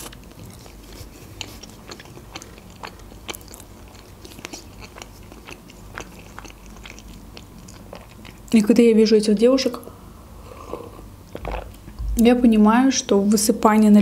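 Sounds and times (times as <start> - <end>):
chewing with mouth clicks: 0.0 - 8.6.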